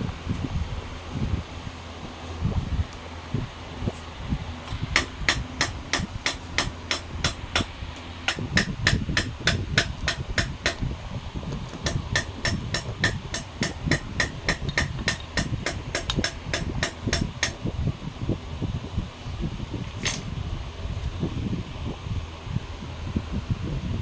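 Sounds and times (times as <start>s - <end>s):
hammer tapping metal: 4.7s - 10.9s, 11.8s - 17.6s.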